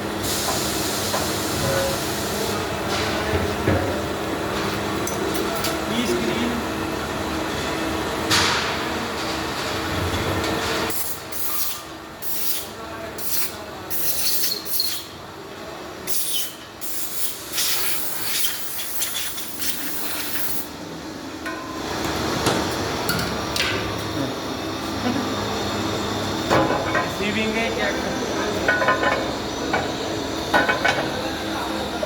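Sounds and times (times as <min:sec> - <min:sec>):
workshop machinery humming: 0:00.0 - 0:32.0
short hissing bursts: 0:16.1 - 0:20.6.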